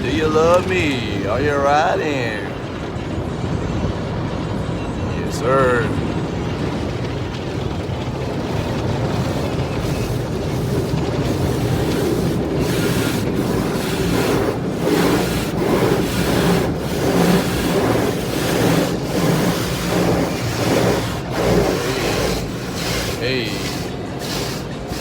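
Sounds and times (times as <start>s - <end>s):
car wash water spraying: 5.4s - 25.0s.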